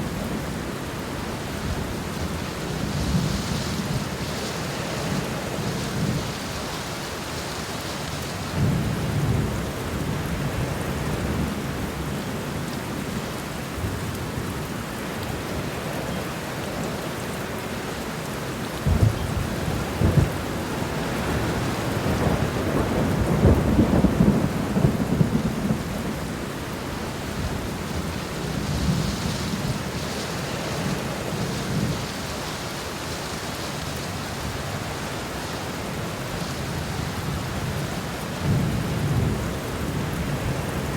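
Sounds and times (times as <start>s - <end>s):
steady rain falling: 0.0s - 40.9s
thunder rumbling: 18.8s - 32.4s.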